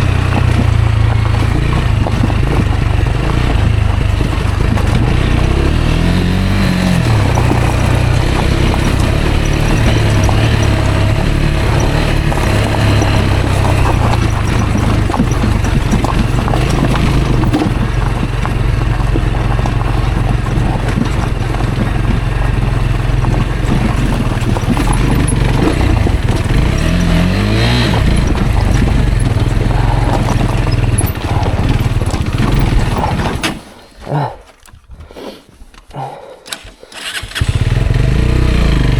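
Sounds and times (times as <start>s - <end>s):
motorcycle engine running: 0.0s - 33.8s, 37.0s - 38.9s
knocks and rattles from rough ground: 0.0s - 38.9s.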